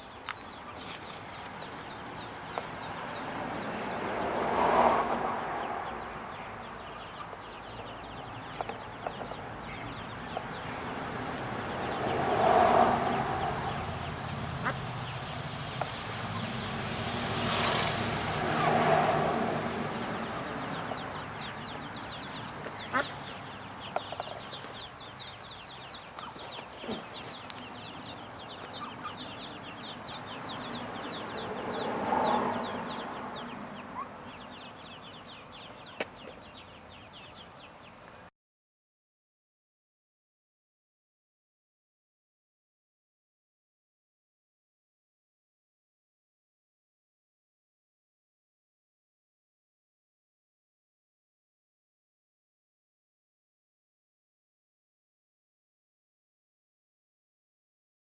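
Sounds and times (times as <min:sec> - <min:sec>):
ducklings peeping: 0:00.0 - 0:12.3, 0:13.1 - 0:38.2.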